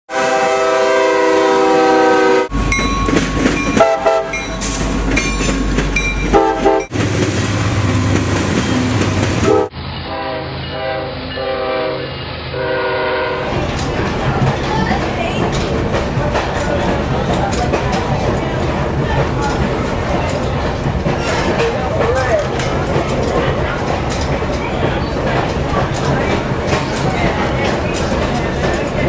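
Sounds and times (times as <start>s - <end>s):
locomotive horn: 0.1s - 2.7s, 3.7s - 4.7s, 6.3s - 6.9s, 9.4s - 14.1s
train running noise: 0.2s - 29.0s.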